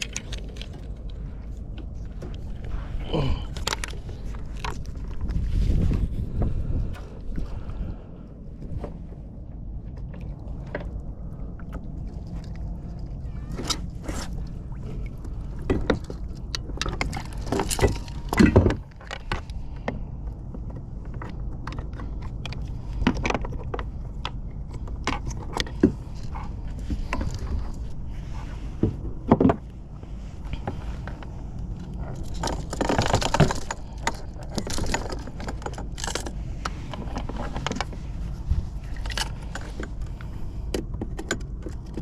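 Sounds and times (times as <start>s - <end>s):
fishing gear knocking and rattling: 0.0s - 2.7s, 3.4s - 6.6s, 15.2s - 28.0s, 30.5s - 42.0s
wind and water on hull: 0.0s - 42.0s.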